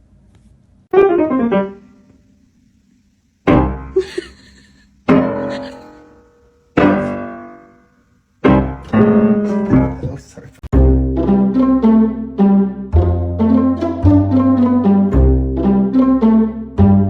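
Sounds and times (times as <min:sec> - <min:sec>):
piano playing runs and chords: 0:00.9 - 0:02.0, 0:06.8 - 0:07.7, 0:08.4 - 0:10.2.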